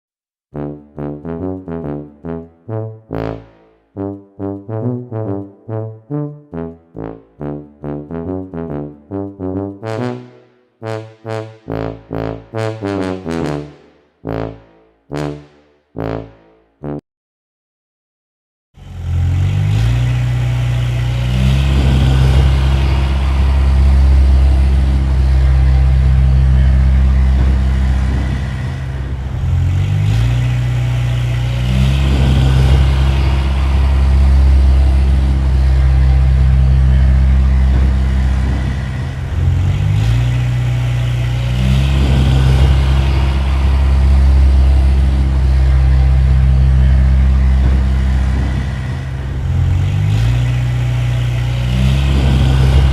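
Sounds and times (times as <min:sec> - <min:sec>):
heavy engine running: 0:18.8 - 0:52.9.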